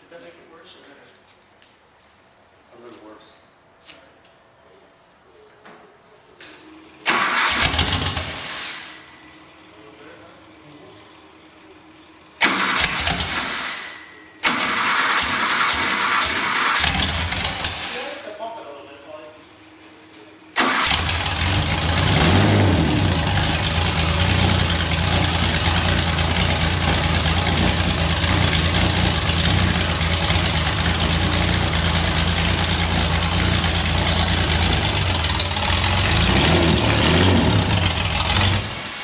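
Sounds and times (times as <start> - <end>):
race car engine idling: 15.2 - 17.8, 18.6 - 39.0.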